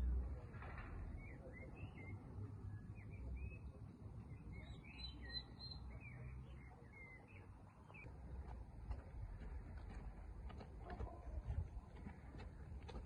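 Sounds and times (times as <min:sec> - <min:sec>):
small birds chirping: 0:00.6 - 0:10.0.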